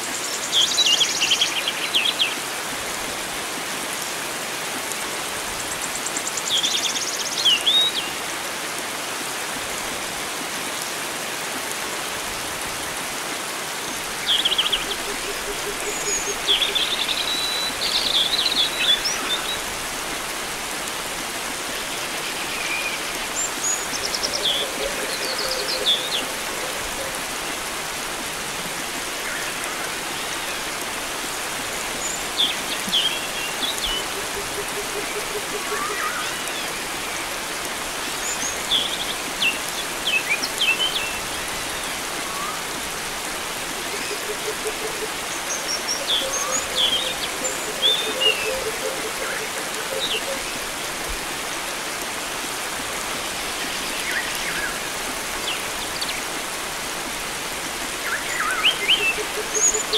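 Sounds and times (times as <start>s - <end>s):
flowing water hiss: 0.0s - 59.9s
birds chirping and trilling: 44.0s - 50.7s.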